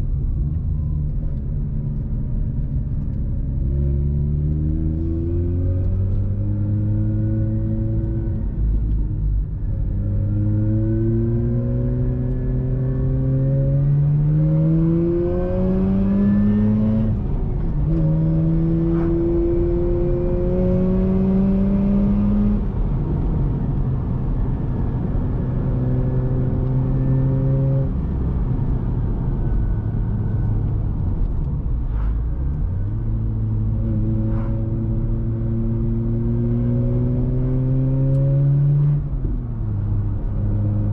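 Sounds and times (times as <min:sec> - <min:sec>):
rotary engine accelerating: 0:10.0 - 0:22.9, 0:24.5 - 0:28.7, 0:29.5 - 0:40.9.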